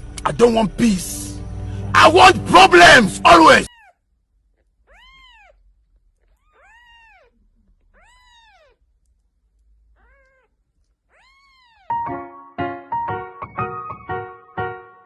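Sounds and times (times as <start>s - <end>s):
cat meowing faintly: 4.9s - 5.6s, 6.3s - 8.8s, 9.9s - 11.9s.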